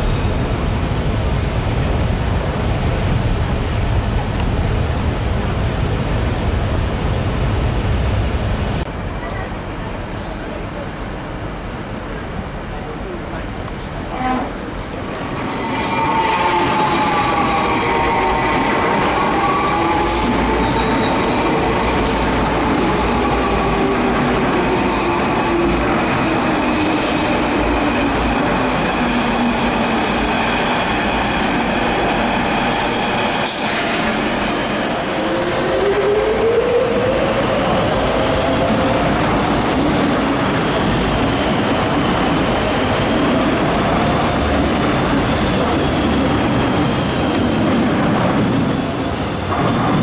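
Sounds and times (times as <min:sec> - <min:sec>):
train wheels on rail: 0:13.3 - 0:50.0.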